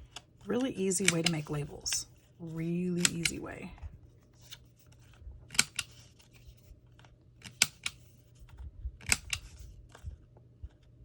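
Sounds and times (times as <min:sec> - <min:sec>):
scissors snipping paper: 0:00.5 - 0:01.7, 0:02.5 - 0:03.6.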